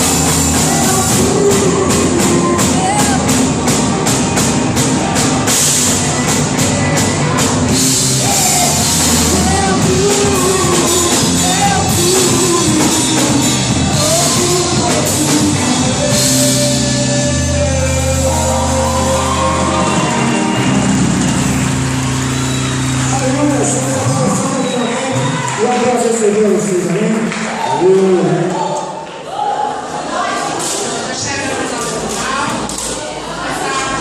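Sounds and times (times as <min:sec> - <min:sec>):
person singing melody: 0:00.0 - 0:03.7, 0:06.2 - 0:24.5
drum kit: 0:00.0 - 0:24.5
worship band playing: 0:00.0 - 0:29.0.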